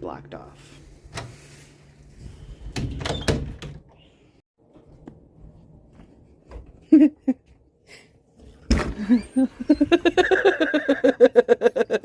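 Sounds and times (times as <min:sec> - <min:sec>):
person laughing: 0:06.8 - 0:07.5, 0:09.0 - 0:12.0.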